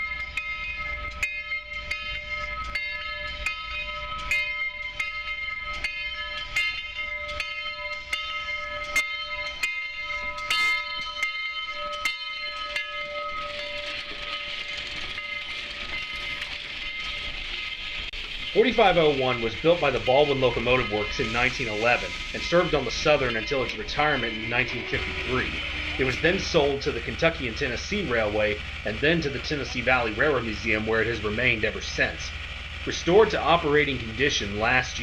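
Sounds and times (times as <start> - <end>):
steam locomotive bell ringing: 0.0 - 35.0
hiss of escaping steam: 18.1 - 35.0.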